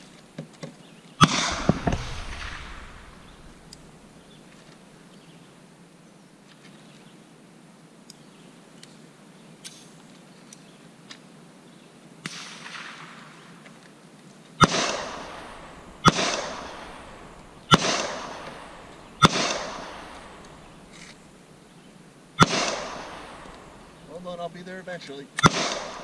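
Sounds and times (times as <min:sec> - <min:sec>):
echoing gunshots: 0:01.2 - 0:04.3, 0:12.2 - 0:13.6, 0:14.6 - 0:21.4, 0:22.4 - 0:24.3, 0:25.4 - 0:26.0.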